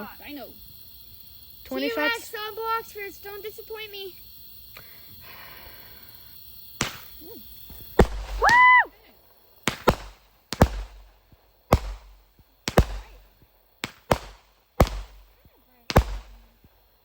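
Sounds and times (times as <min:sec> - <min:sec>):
fireworks shots with crackling: 0:03.5 - 0:17.0
high rising and falling whoop: 0:08.4 - 0:09.1.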